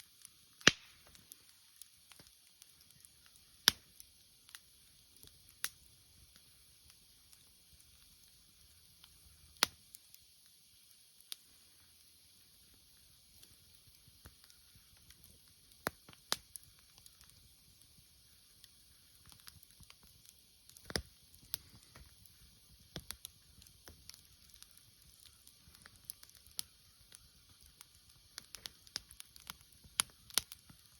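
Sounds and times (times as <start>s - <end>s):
faint steady hiss: 0.0s - 30.9s
wood fire crackling: 0.0s - 30.9s
loud sharp pops: 0.6s - 1.2s.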